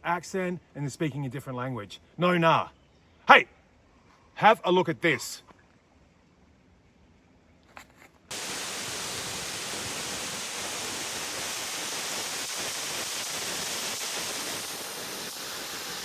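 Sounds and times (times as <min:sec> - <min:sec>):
waterfall rushing: 0:08.3 - 0:16.0.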